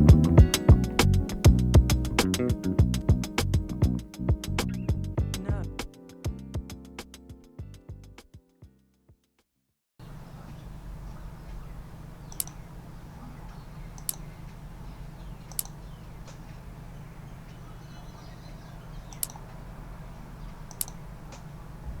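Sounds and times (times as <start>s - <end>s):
computer mouse clicking: 12.3s - 12.6s, 13.9s - 14.6s, 15.4s - 16.6s, 19.0s - 19.6s, 20.5s - 21.5s.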